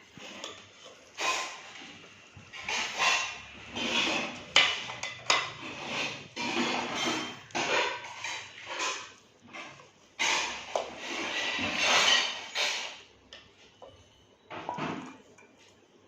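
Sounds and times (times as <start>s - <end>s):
metal kitchenware clattering: 2.5s - 13.1s.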